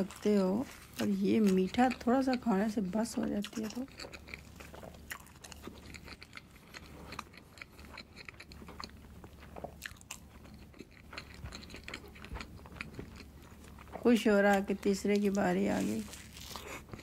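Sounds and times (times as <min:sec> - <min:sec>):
low steady hum: 0:00.0 - 0:17.0
chewing with soft mouth clicks: 0:03.3 - 0:15.4.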